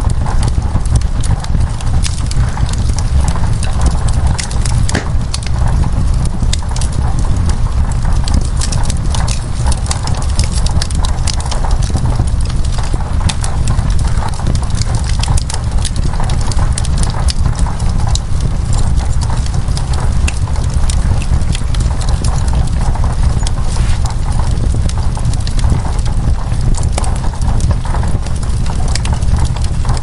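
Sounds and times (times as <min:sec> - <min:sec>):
low fire rumble: 0:00.0 - 0:30.0
rain on window glass: 0:00.0 - 0:30.0
wood fire crackling and popping: 0:00.0 - 0:30.0.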